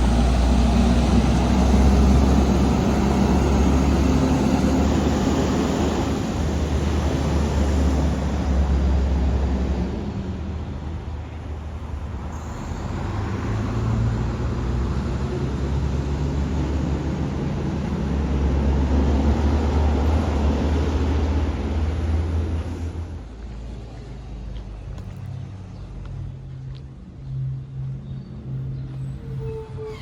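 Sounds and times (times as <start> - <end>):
truck diesel engine droning: 0.0 - 10.0, 10.9 - 23.3.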